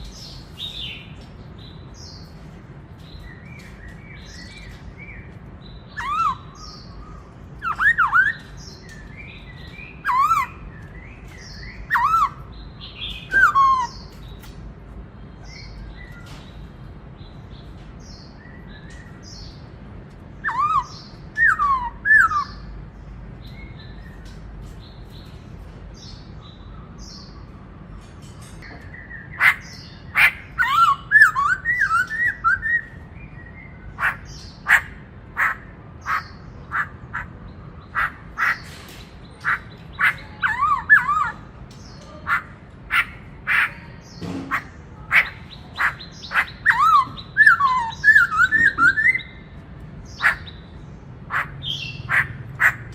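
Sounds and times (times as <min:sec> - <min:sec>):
bird singing whistled phrases: 0:20.4 - 0:22.6, 0:30.6 - 0:33.0, 0:46.4 - 0:49.4.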